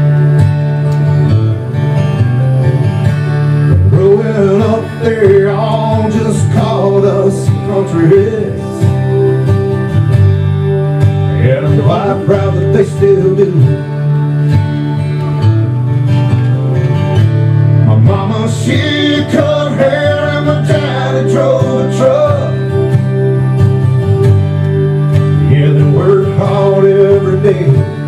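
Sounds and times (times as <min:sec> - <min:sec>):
plucked guitar: 0:00.0 - 0:28.0
person singing: 0:03.9 - 0:09.2, 0:11.3 - 0:13.9, 0:17.9 - 0:22.9, 0:25.4 - 0:28.0.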